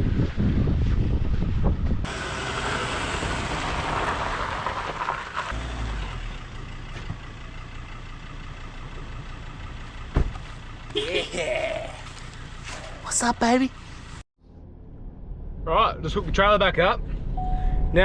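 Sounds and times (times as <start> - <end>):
car engine and tyres on sand: 0.0 - 18.0.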